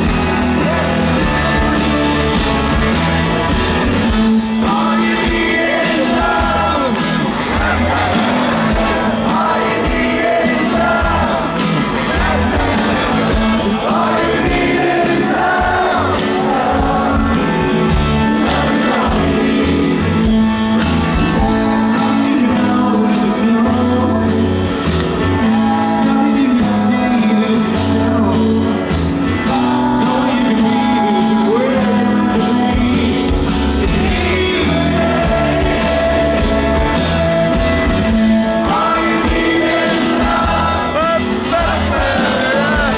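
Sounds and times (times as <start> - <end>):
audience shouting: 0.0 - 20.0, 38.5 - 42.9
live rock band playing: 0.0 - 42.9
person singing: 0.0 - 42.9.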